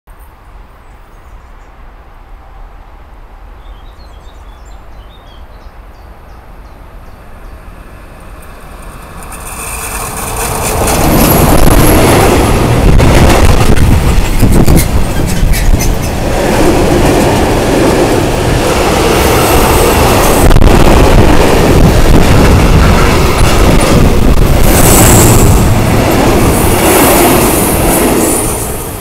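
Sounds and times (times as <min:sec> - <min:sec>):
freight train passing: 0:00.2 - 0:29.0
wheel clatter: 0:09.0 - 0:11.7.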